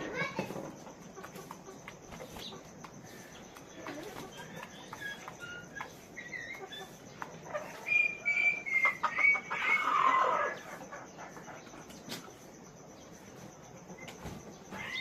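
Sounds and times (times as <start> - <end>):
chickens calling: 0.0 - 15.0
chicken squawk: 5.2 - 12.2.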